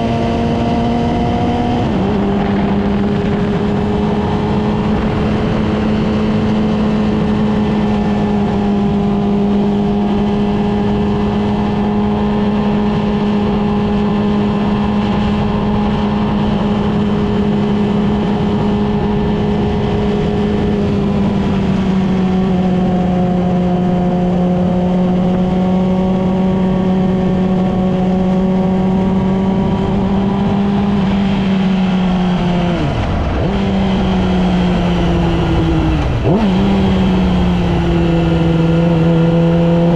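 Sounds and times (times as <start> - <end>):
motorcycle engine high hum: 0.0 - 39.9
wind noise: 0.0 - 39.9.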